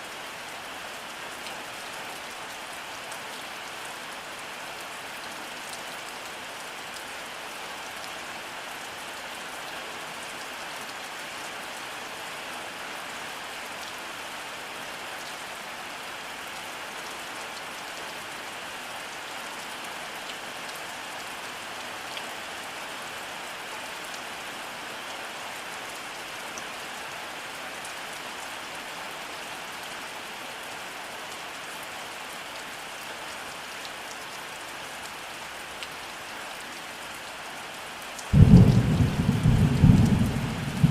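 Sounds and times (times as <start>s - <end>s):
steady rainfall: 0.0s - 40.9s
rain drop ticks: 38.2s - 40.9s.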